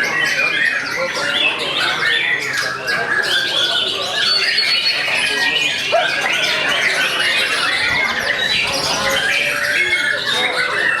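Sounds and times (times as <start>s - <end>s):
many songbirds singing: 0.0s - 11.0s.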